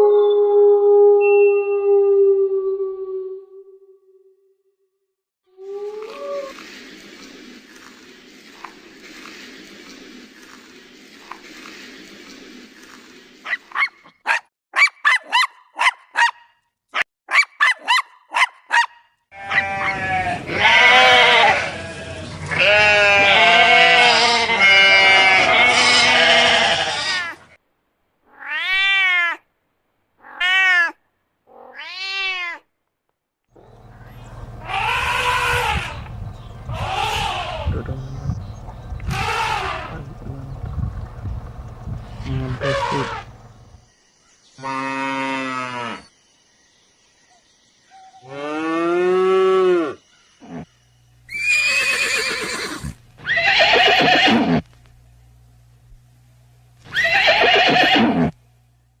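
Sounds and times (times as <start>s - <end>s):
animal calls: 19.4s - 27.5s, 33.6s - 43.8s, 51.3s - 54.7s, 56.9s - 58.4s.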